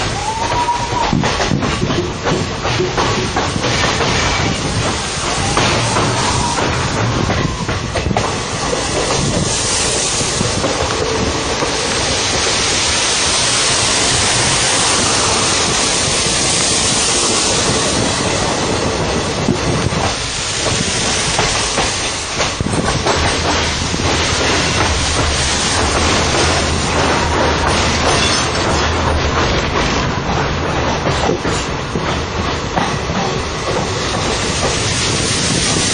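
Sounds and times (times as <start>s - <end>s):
train wheels clattering on rails: 0.0s - 35.9s.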